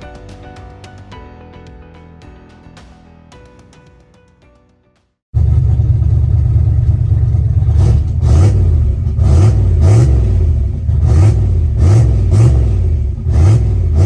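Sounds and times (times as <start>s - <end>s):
car engine revving: 5.4s - 14.0s.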